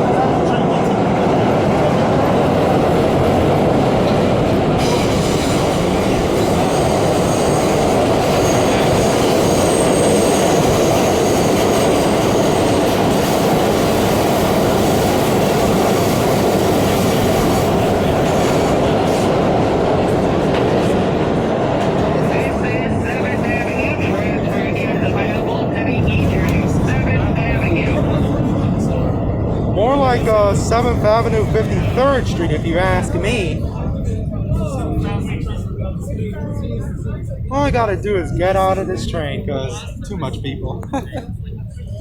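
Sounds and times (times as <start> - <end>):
subway car rumbling: 0.0 - 42.0
high wheel squeal: 4.8 - 12.8.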